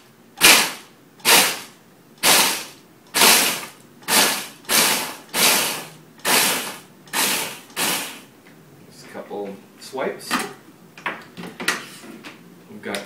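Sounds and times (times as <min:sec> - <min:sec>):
blender pulsing: 0:00.4 - 0:08.3.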